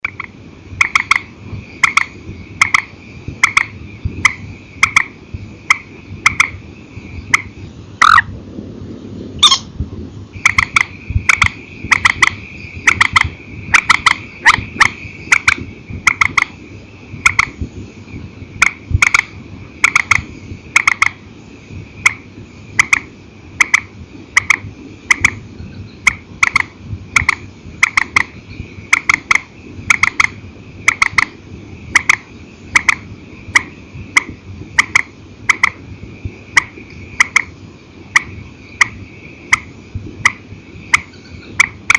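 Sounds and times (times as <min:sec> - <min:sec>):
swamphen calling: 0:04.7 - 0:08.3, 0:09.4 - 0:09.7, 0:10.4 - 0:16.5, 0:40.3 - 0:41.6.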